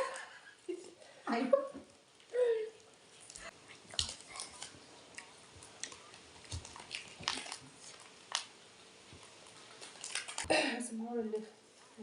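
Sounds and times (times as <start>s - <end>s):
person chewing: 3.1s - 10.5s.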